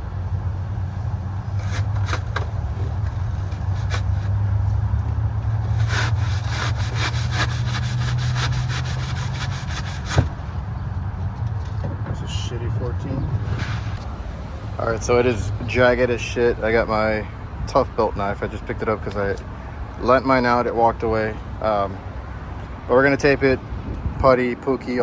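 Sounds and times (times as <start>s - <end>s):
hand saw rasping through board: 1.5s - 4.4s, 5.5s - 10.4s.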